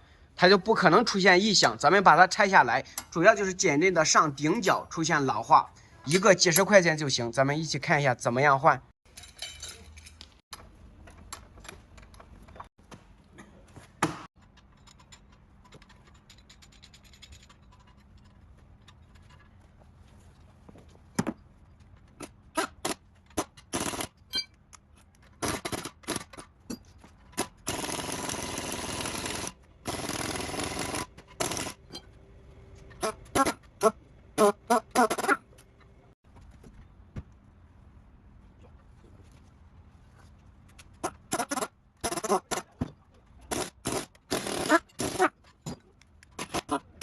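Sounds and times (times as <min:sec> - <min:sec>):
hand tools clinking on metal: 0:09.1 - 0:10.3.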